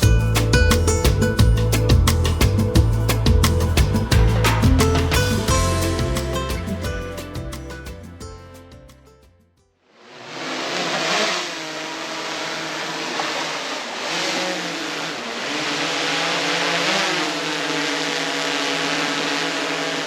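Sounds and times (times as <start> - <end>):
motor running: 10.2 - 20.0.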